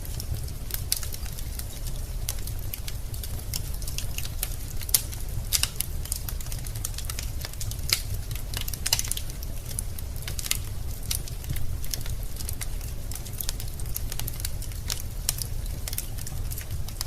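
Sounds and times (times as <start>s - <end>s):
logs crackling and popping: 0.0s - 17.0s
low rumble of flames: 0.0s - 17.0s.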